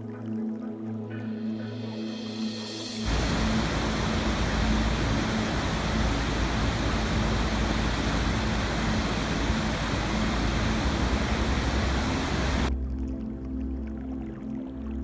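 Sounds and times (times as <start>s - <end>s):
soft music with sustained notes: 0.0s - 15.0s
rushing water: 3.0s - 12.7s.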